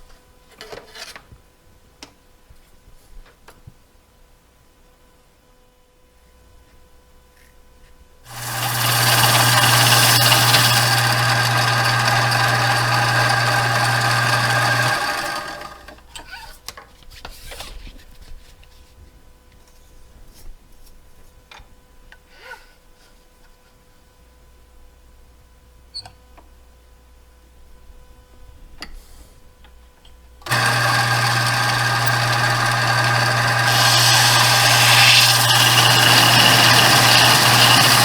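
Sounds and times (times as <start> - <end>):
power tool motor hissing: 8.3 - 16.0, 30.5 - 38.0.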